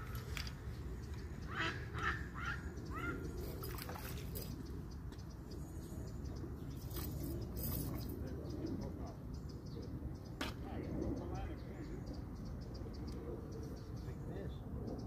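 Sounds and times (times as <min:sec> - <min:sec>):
bird calling: 0:00.0 - 0:09.2
steady low rumble: 0:00.0 - 0:15.0.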